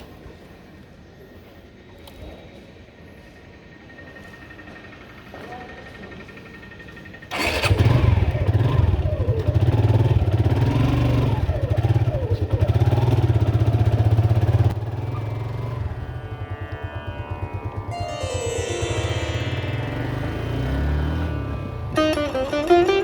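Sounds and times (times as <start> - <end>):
motorcycle engine revving: 7.3 - 18.0.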